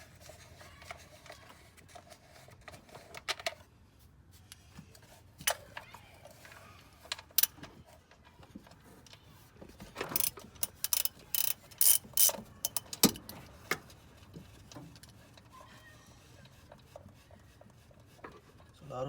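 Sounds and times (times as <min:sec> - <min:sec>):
ratchet clicking: 0:10.0 - 0:13.4.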